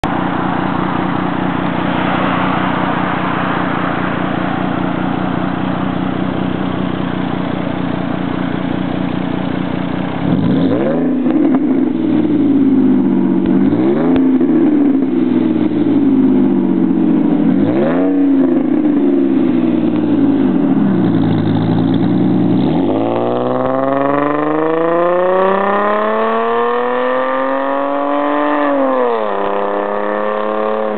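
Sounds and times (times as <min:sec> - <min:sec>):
car engine idling: 0:00.0 - 0:24.6
car engine revving: 0:00.0 - 0:30.9.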